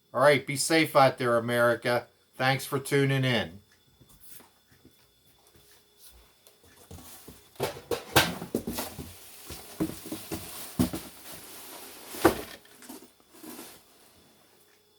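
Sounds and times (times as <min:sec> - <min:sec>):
knocks and clatter: 0:07.6 - 0:08.9.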